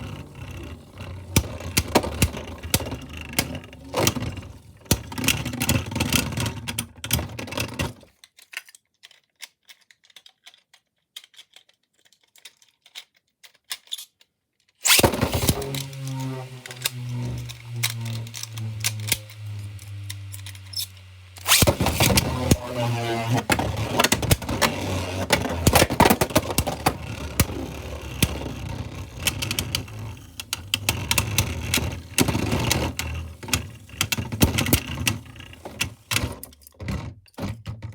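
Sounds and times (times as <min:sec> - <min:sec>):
whirring hiss: 0:14.8 - 0:36.4.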